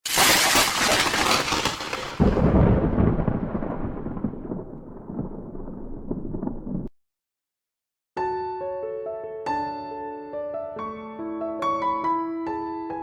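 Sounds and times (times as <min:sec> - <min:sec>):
thunder clap and rumble: 0:02.2 - 0:06.9.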